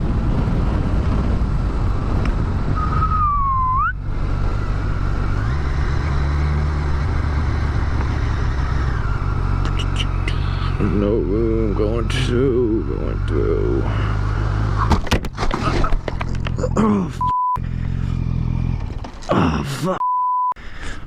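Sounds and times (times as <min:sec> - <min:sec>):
rushing wind noise: 0:00.0 - 0:10.8
engine whine: 0:00.0 - 0:19.5
motorcycle engine running: 0:03.8 - 0:14.9, 0:17.6 - 0:19.2.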